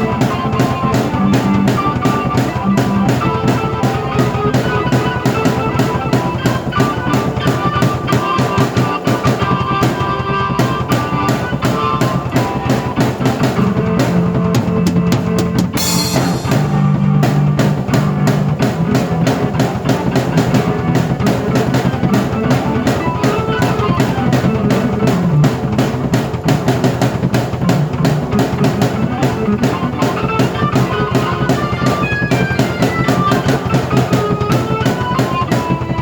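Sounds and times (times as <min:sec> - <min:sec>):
busy drum beat: 0:00.0 - 0:36.0
low keyboard notes: 0:00.0 - 0:36.0
cymbal crash: 0:15.8 - 0:16.9.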